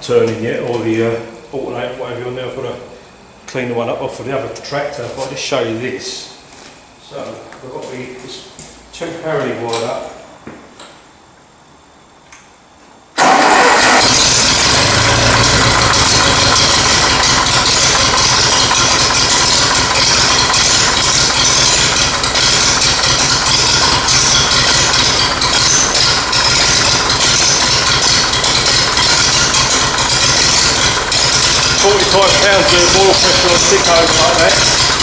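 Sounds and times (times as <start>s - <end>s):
tractor engine starting and running: 13.2s - 35.0s.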